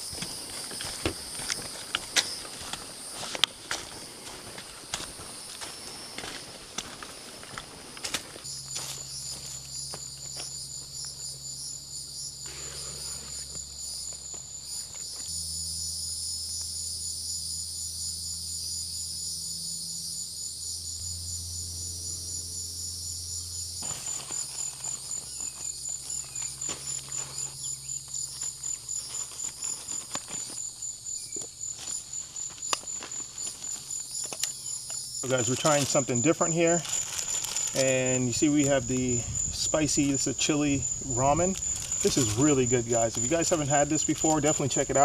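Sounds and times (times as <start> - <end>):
crickets chirping: 0.0 - 45.0
low hum: 15.3 - 28.4.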